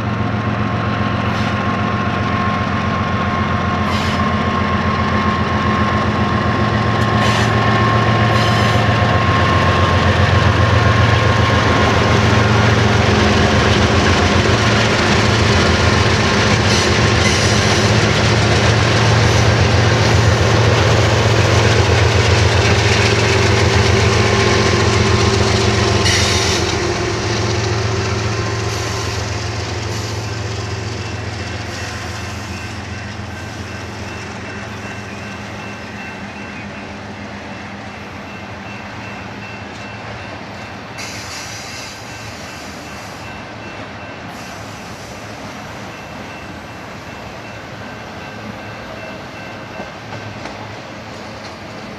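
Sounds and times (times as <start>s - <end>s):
diesel locomotive engines droning: 0.0s - 51.9s
train wheels rolling on rails: 0.0s - 51.9s.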